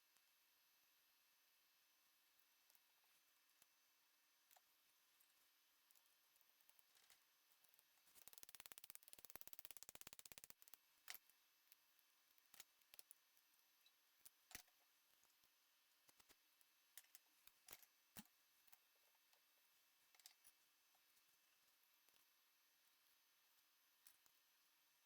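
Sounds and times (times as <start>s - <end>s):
mechanical clicking: 8.2s - 10.8s.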